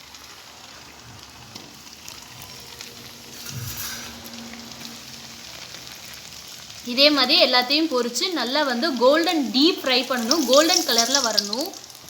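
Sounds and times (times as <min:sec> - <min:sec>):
dough sizzling in hot oil: 0:00.0 - 0:12.0.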